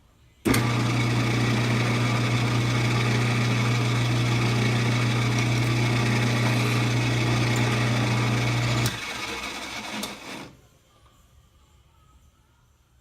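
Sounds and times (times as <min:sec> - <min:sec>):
drill bit boring into wood: 0:00.5 - 0:10.5
lathe motor humming: 0:00.5 - 0:10.5.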